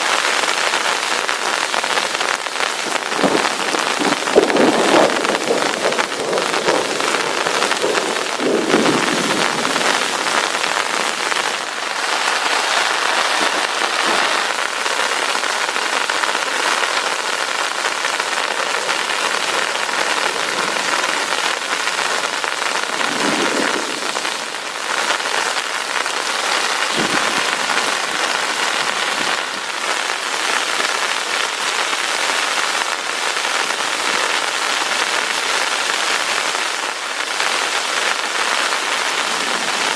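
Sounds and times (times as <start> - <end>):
heavy rain falling: 0.0 - 39.9
thunder rumbling: 2.8 - 29.8.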